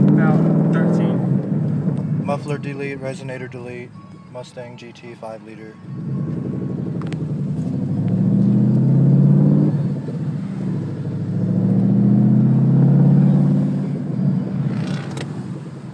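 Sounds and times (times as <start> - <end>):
loud low car exhaust: 0.0 - 2.4, 6.0 - 15.9.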